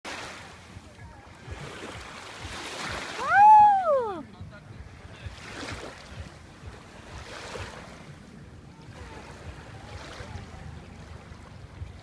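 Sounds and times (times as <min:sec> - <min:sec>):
sea waves washing ashore: 0:00.1 - 0:12.0
wind rumble on microphone: 0:00.1 - 0:12.0.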